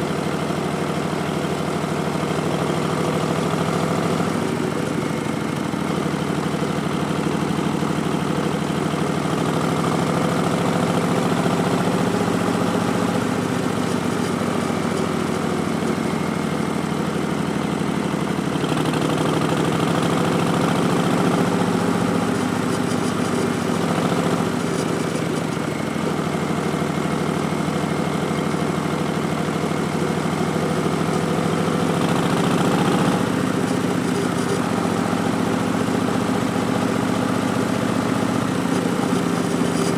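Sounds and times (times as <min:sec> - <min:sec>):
motorcycle engine revving: 0:18.5 - 0:25.7, 0:29.7 - 0:39.9.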